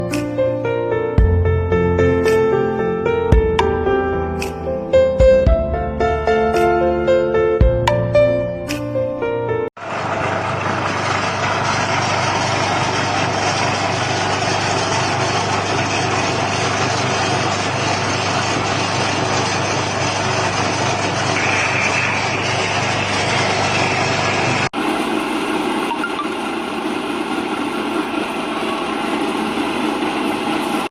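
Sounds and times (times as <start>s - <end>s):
pellet mill machine running: 9.8s - 30.9s.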